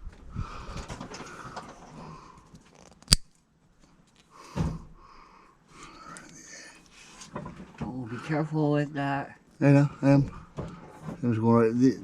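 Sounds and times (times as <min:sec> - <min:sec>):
hand cutters snipping: 0:03.0 - 0:03.2.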